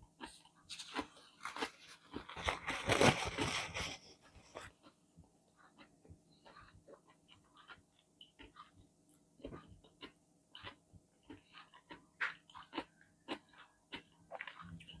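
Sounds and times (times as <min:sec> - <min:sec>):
wet chewing and mouth smacks: 0:05.7 - 0:15.0.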